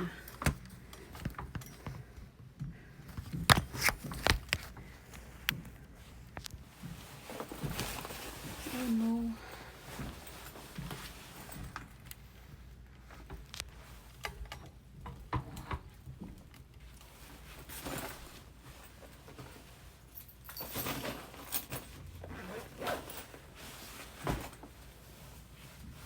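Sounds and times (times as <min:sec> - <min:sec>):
clicks and knocks of handling: 0:00.3 - 0:06.9
rustling: 0:02.8 - 0:14.3, 0:16.5 - 0:26.0.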